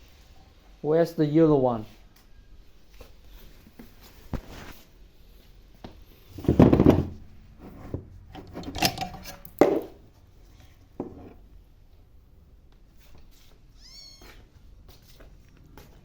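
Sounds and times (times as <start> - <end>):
objects clattering and knocking: 6.3 - 10.1.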